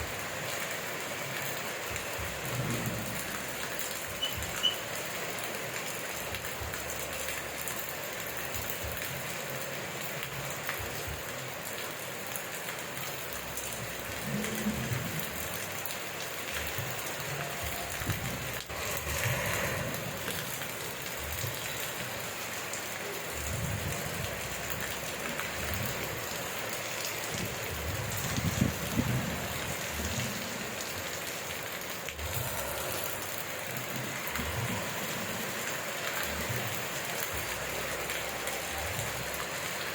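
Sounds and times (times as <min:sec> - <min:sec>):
rain falling: 0:00.0 - 0:39.9
low rumbles: 0:13.6 - 0:15.6, 0:17.6 - 0:21.8.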